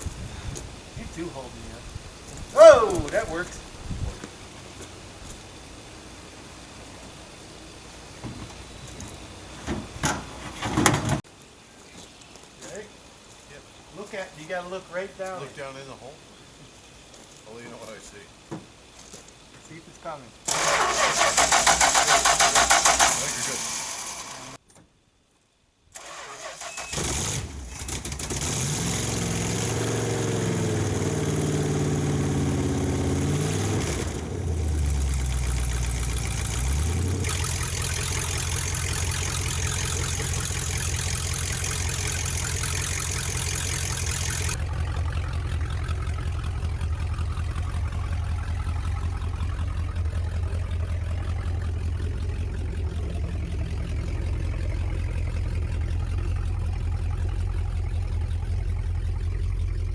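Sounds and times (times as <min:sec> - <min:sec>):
car engine starting and idling: 0:20.4 - 0:24.6, 0:25.9 - 0:59.9.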